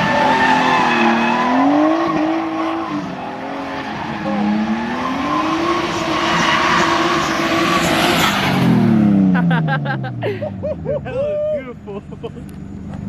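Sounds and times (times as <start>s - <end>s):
tyre squeal: 0.0s - 8.6s
car engine revving high: 0.0s - 10.2s.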